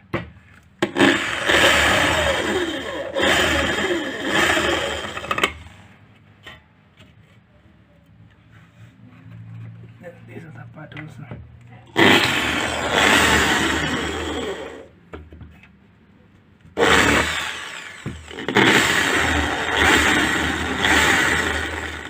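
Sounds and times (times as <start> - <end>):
electric drill boring into wood: 0.8 - 5.6, 12.0 - 14.9, 16.8 - 22.0.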